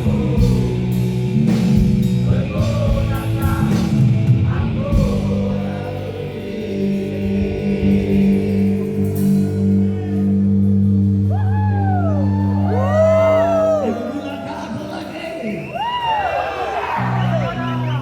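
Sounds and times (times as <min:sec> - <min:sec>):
rock band held chord: 0:00.0 - 0:11.3
crowd shouts and whoops: 0:11.3 - 0:14.4, 0:15.6 - 0:18.0.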